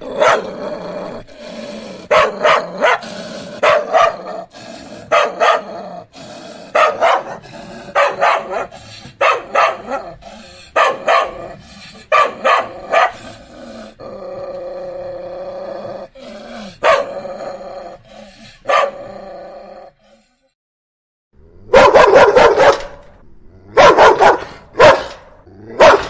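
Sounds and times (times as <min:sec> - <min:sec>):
dog barking: 0:00.1 - 0:00.6, 0:02.1 - 0:04.5, 0:05.1 - 0:05.8, 0:06.7 - 0:13.3, 0:16.8 - 0:17.2, 0:18.6 - 0:19.1, 0:21.7 - 0:23.0, 0:23.8 - 0:26.0.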